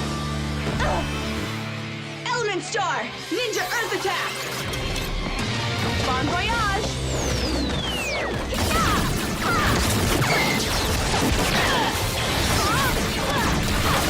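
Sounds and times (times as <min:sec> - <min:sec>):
action soundtrack music: 0:00.0 - 0:14.0
battle crashes and impacts: 0:08.5 - 0:14.0.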